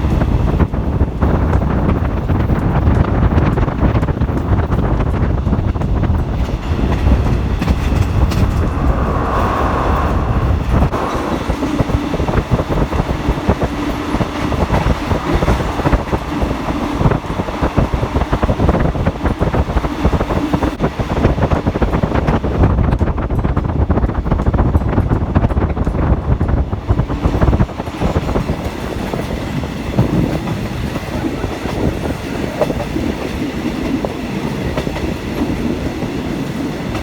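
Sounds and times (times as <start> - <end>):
train rumbling on track: 0.0 - 37.0.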